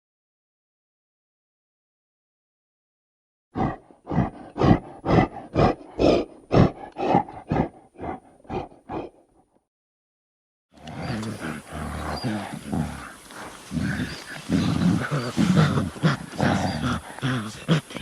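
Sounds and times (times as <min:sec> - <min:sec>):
dinosaur roaring grunts: 0:03.6 - 0:09.3, 0:10.8 - 0:18.0.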